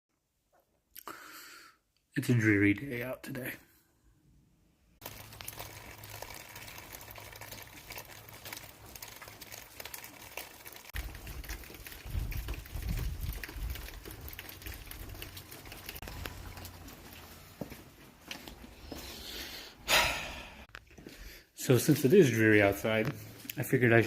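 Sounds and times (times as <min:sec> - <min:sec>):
steady rain falling: 0:05.0 - 0:17.8.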